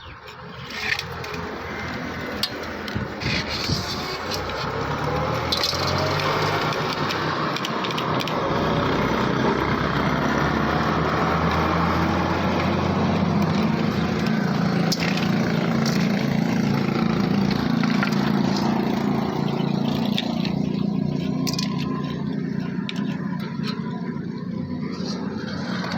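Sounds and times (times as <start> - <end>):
motorcycle engine running: 8.4 - 25.9.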